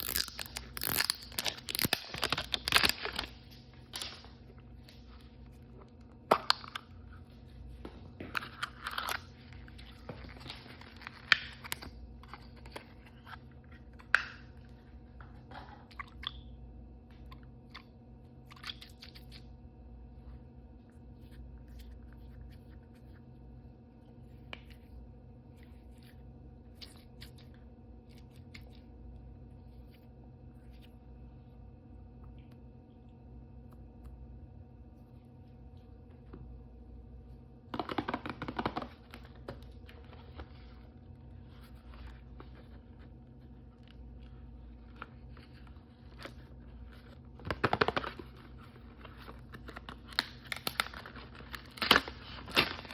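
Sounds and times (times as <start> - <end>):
plastic packaging crinkling: 0.0 - 4.9, 44.7 - 52.9.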